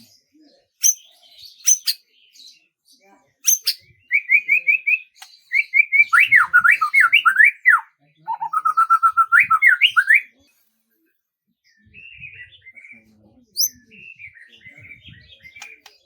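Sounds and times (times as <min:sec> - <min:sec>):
bird twittering: 0:00.8 - 0:02.0, 0:03.4 - 0:10.3, 0:13.6 - 0:14.4
songbird singing whistled notes: 0:00.8 - 0:02.1, 0:03.4 - 0:10.4, 0:11.8 - 0:16.0.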